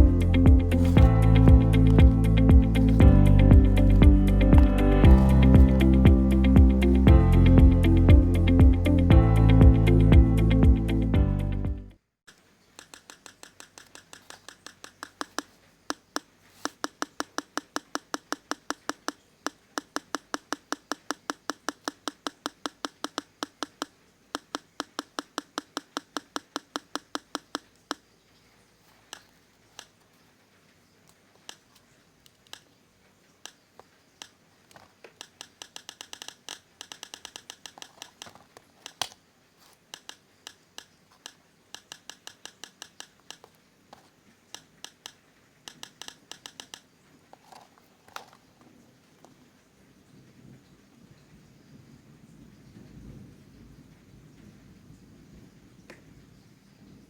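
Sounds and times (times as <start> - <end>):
sharp clicking: 12.3 - 28.0, 31.0 - 32.8, 33.4 - 43.6, 44.5 - 48.4.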